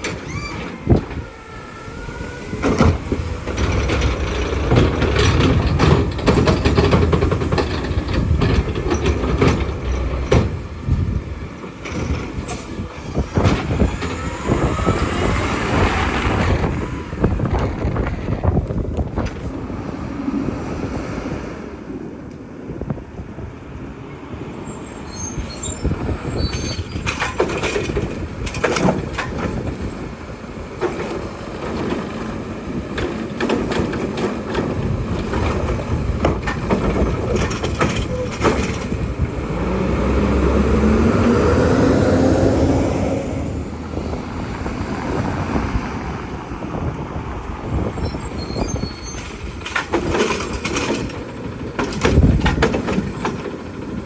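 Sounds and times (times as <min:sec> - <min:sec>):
diesel engine running: 0:00.0 - 0:19.8, 0:34.3 - 0:48.1, 0:49.3 - 0:54.0
knocks and clanks: 0:02.6 - 0:14.9, 0:26.5 - 0:30.0, 0:30.7 - 0:39.6, 0:49.2 - 0:54.0.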